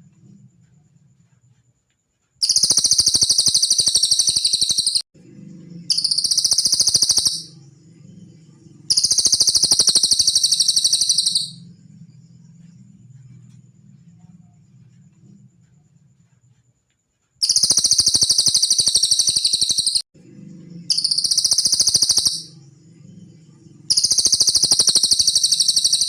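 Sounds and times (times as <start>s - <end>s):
faint low hum: 0.0s - 2.4s, 5.2s - 17.4s, 20.2s - 26.0s
bird high-pitched trills: 2.4s - 5.0s, 5.9s - 7.6s, 8.9s - 11.7s, 17.4s - 20.0s, 20.8s - 22.6s, 23.8s - 26.0s.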